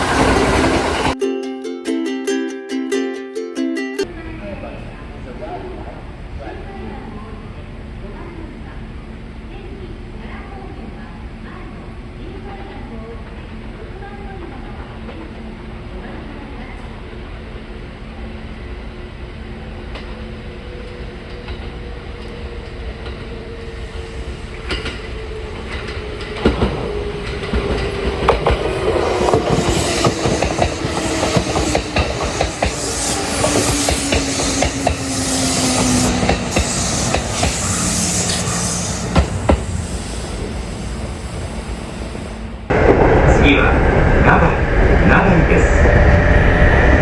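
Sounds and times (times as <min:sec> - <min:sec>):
train motor whine: 0:20.6 - 0:43.2
train wheels clattering over joints: 0:25.7 - 0:41.1.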